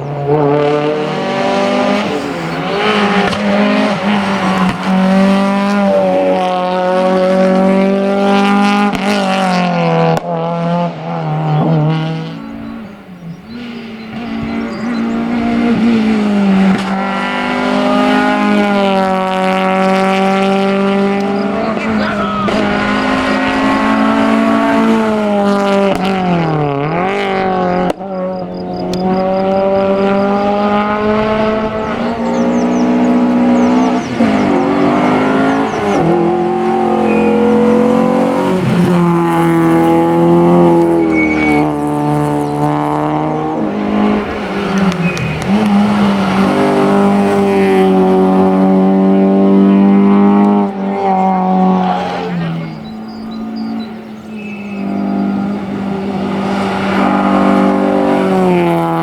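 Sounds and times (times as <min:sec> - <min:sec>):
rally car engines revving: 0:00.0 - 0:59.0.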